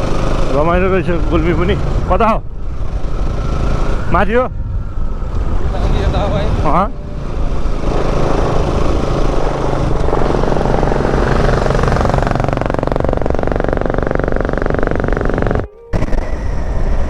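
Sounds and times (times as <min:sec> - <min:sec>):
motorcycle engine running: 0:00.0 - 0:05.5, 0:06.9 - 0:16.5
wind noise on microphone: 0:01.8 - 0:17.0.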